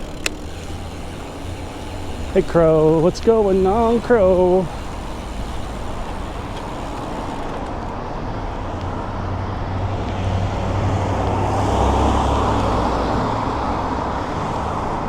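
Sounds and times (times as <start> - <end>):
car engine rumble: 0.0 - 15.0
road traffic noise: 0.0 - 15.0.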